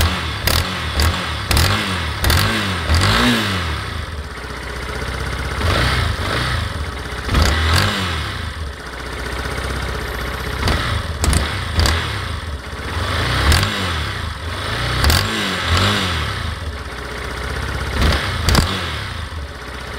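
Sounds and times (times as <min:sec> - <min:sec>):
motorcycle engine revving: 0:00.0 - 0:19.9.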